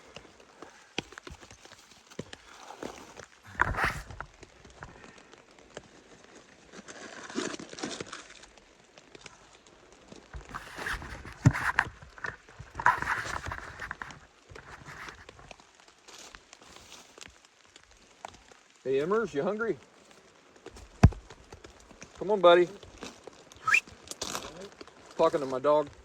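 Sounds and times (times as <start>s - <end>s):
rustling and knocking of objects: 0.0s - 18.7s, 19.8s - 26.0s
scuffling bursts: 23.6s - 23.8s.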